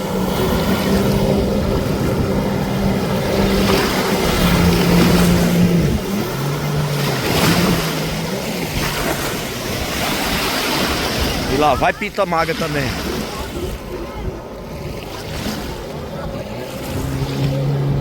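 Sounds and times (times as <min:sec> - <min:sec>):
jet ski engine running: 0:00.0 - 0:18.0
wind: 0:00.0 - 0:18.0.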